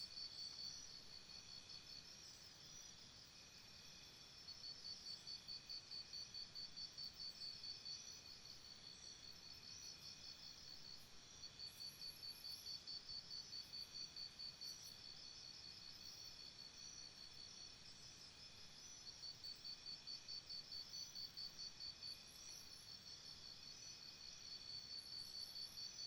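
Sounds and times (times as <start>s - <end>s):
insect chirping rhythmically: 18.4s - 26.0s.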